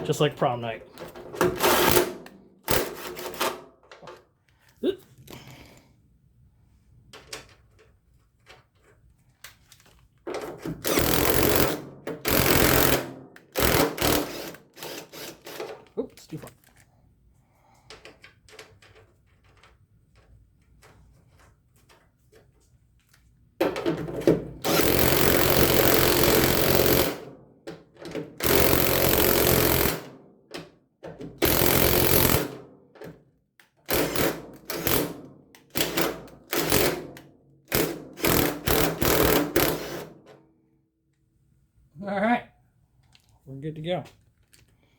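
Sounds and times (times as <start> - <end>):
impact wrench hammering: 1.4 - 3.6, 10.6 - 15.7, 24.6 - 27.2, 33.9 - 37.1, 37.7 - 40.2.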